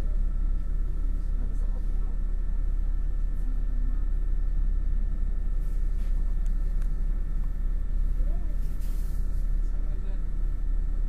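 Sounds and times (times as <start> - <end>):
bus drivetrain and road rumble: 0.0 - 11.0.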